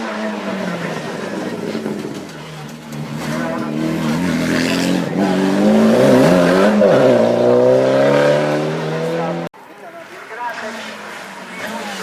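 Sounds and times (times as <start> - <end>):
race car engine accelerating: 0.0 - 9.5.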